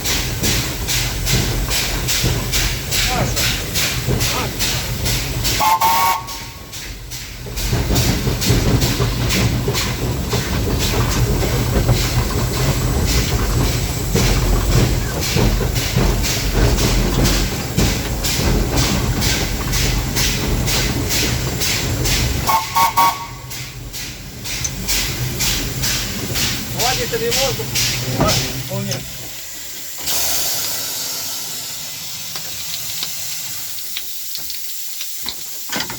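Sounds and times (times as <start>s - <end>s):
steam locomotive exhaust chuffs: 0.0s - 35.7s
hissing steam: 0.0s - 35.9s
running gear rumbling: 6.7s - 29.7s.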